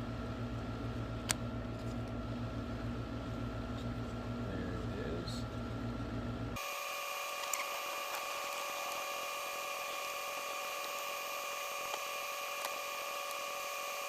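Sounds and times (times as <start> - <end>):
electric drill motor whine: 6.6 - 14.0.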